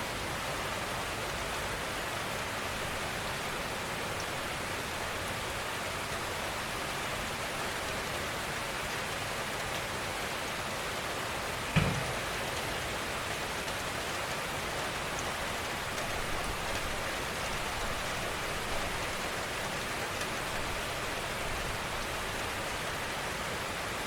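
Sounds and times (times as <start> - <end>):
gentle rain falling: 0.0 - 24.0
loud thump: 11.8 - 12.5.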